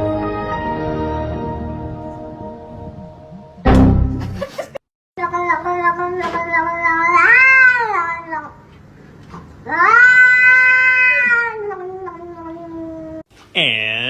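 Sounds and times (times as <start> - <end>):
cat yowling: 6.8 - 8.4, 9.7 - 13.2.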